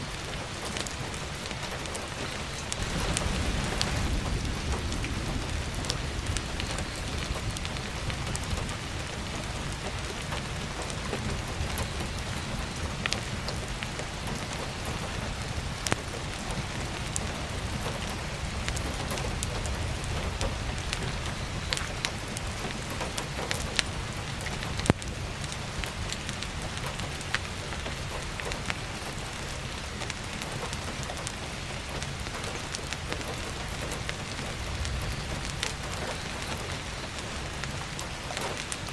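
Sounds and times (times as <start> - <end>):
firewood crackling and popping: 0.0 - 38.9
heavy rain: 0.0 - 38.9
low rumble: 2.6 - 13.1.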